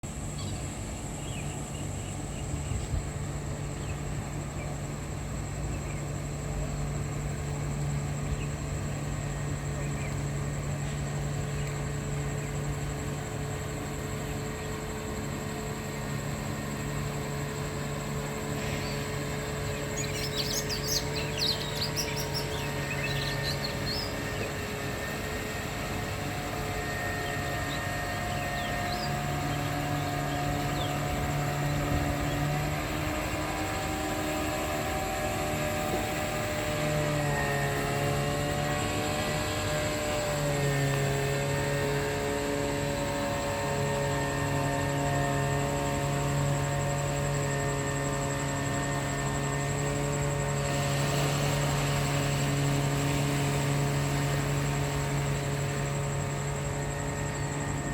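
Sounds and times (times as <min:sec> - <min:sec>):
boat engine running: 0:00.0 - 0:57.9
birds chirping: 0:00.2 - 0:40.9.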